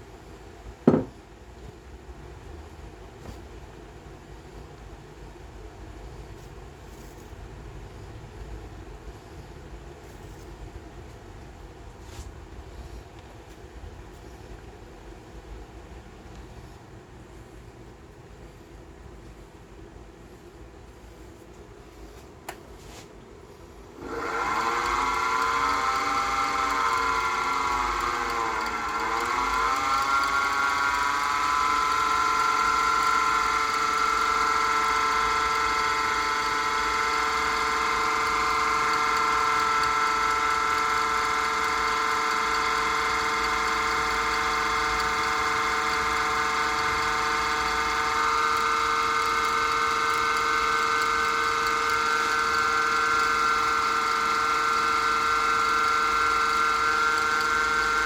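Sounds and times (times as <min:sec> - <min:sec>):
wood lathe motor whining: 0:24.0 - 0:58.0.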